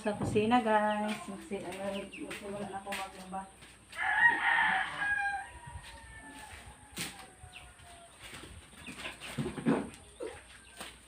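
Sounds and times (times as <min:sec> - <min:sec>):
rooster crowing: 0:04.0 - 0:08.2.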